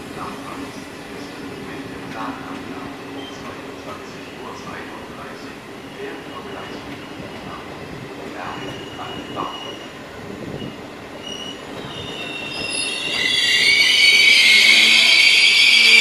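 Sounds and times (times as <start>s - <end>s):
high brake squeals: 8.5s - 9.9s, 10.6s - 16.0s.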